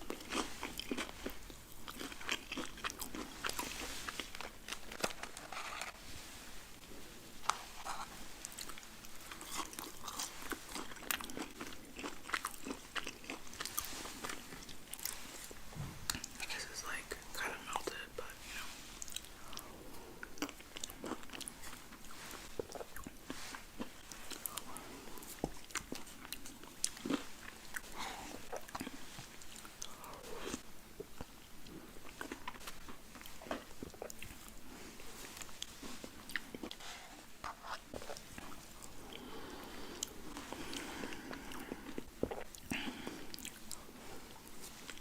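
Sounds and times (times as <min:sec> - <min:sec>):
biting and chewing food: 0:00.0 - 0:06.0, 0:07.4 - 0:16.4, 0:19.0 - 0:34.6.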